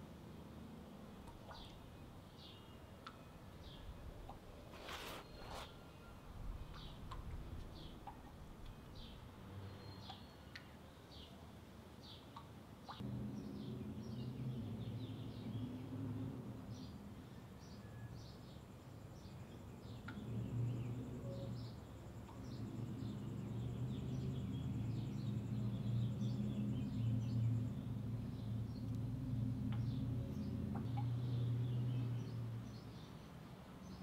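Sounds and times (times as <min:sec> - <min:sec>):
steady low hum: 0:19.0 - 0:33.1.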